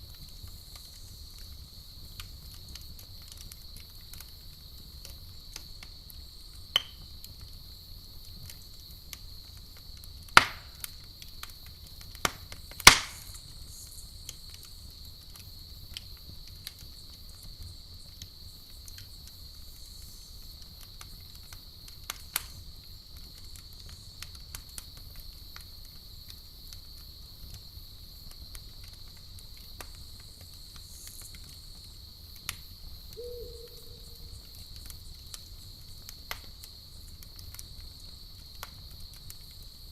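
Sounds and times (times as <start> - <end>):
campfire crackling and popping: 0.0 - 39.9
crickets chirping: 13.1 - 15.8, 25.2 - 39.9.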